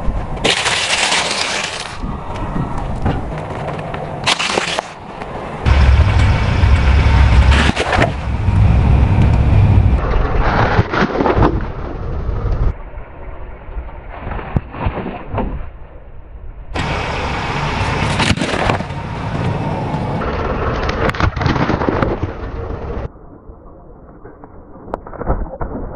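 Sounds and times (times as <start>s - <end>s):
vehicle low rumble: 0.0s - 24.8s
car tyre crushing objects: 0.4s - 2.0s, 3.0s - 5.1s, 5.7s - 8.6s, 16.9s - 20.2s.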